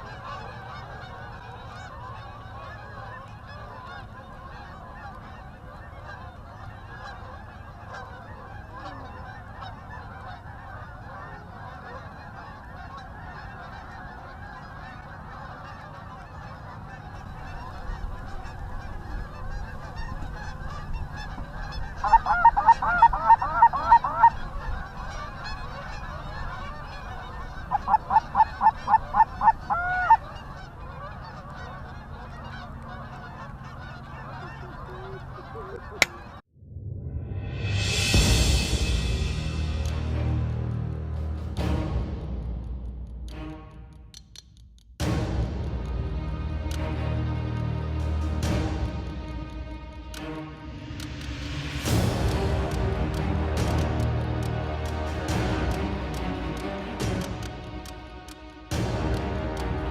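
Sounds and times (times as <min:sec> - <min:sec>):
geese honking: 0:00.0 - 0:36.4, 0:45.8 - 0:59.9
rapid loud honks: 0:05.5 - 0:35.4.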